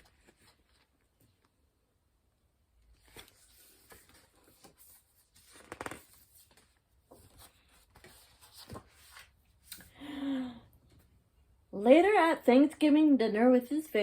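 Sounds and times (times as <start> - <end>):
paper pages rustling: 0.0 - 1.5, 2.9 - 9.9.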